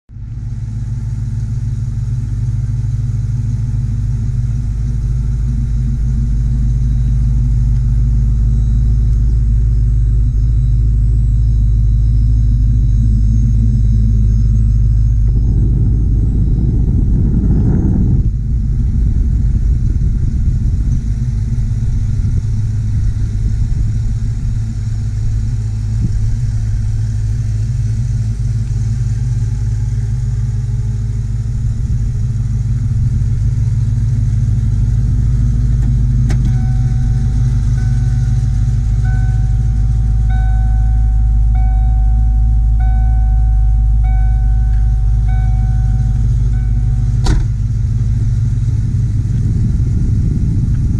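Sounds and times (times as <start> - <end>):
car engine idling: 0.1 - 50.9
car warning chime: 33.7 - 48.6.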